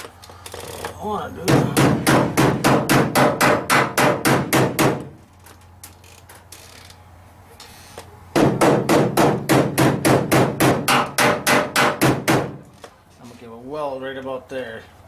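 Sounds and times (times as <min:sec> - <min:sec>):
hammer striking sheet metal: 0:01.5 - 0:05.1.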